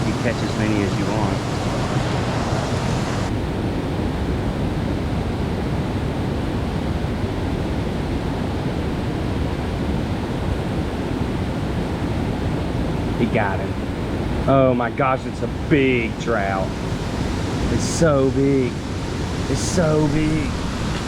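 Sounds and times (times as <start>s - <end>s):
water rushing below a dam: 0.0s - 3.8s, 8.8s - 21.0s
wind on microphone: 0.0s - 5.0s, 16.6s - 21.0s.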